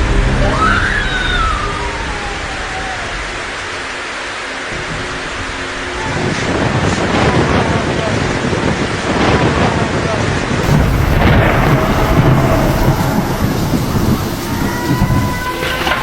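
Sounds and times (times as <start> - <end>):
heavy rain: 0.0 - 16.0
rolling thunder: 10.6 - 16.0.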